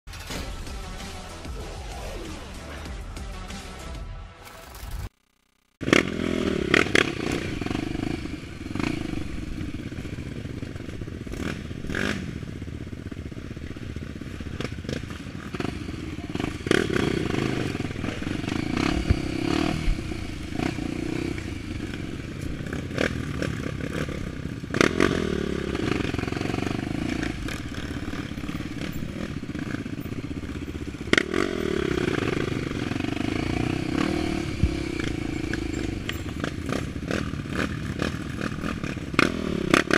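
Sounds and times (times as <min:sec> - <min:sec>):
motorcycle engine revving: 0:05.6 - 0:39.9
knocks and clatter over rough ground: 0:25.8 - 0:39.9.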